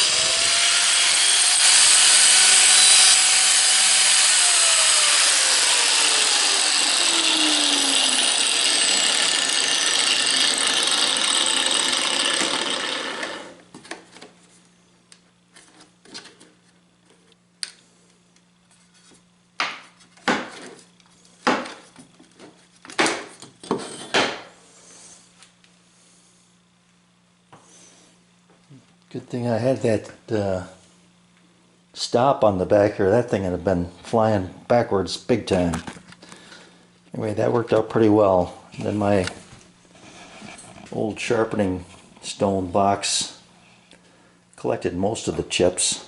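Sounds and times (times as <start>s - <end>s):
power saw cutting metal: 0.0s - 13.6s.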